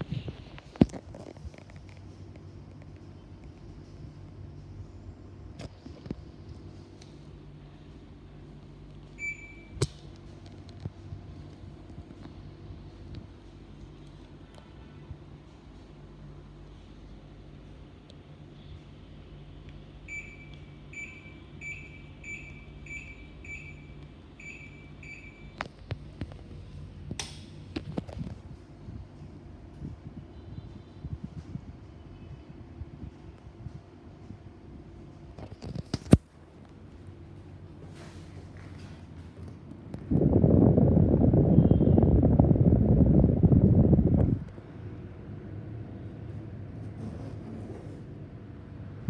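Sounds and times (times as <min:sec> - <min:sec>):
air conditioner beeping: 0:00.0 - 0:49.0
low steady hum: 0:00.0 - 0:49.0
wind buffeting microphone: 0:40.0 - 0:44.6.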